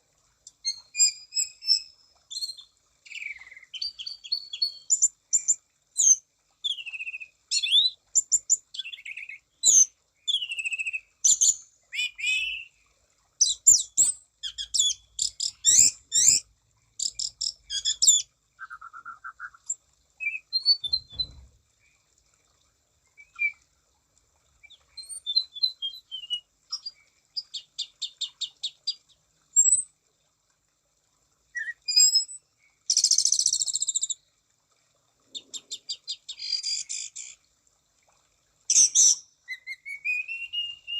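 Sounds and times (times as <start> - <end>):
thrush singing whistled notes and trills: 0.6 - 12.8, 13.4 - 16.4, 17.0 - 21.5, 23.1 - 23.6, 24.6 - 29.0, 31.6 - 34.2, 38.7 - 40.9.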